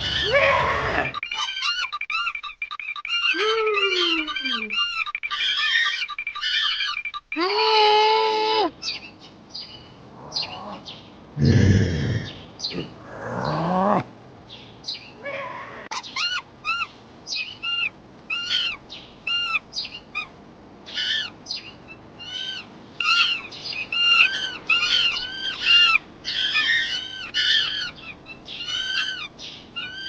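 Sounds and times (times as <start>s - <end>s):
high-pitched animal calls: 0.0s - 9.0s, 22.2s - 30.0s.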